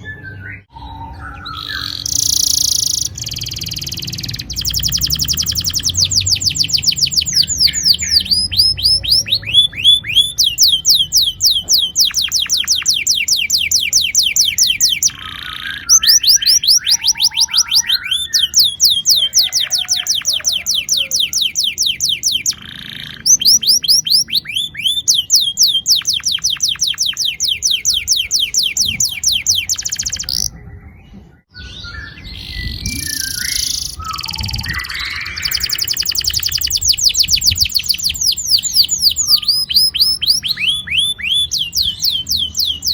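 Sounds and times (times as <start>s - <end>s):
canary singing rolling trills: 0.0s - 42.9s.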